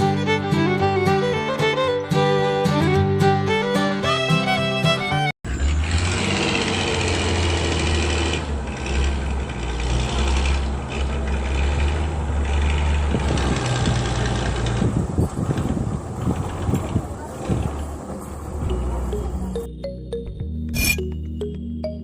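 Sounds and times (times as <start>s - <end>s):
small tractor motor humming: 5.5s - 19.7s.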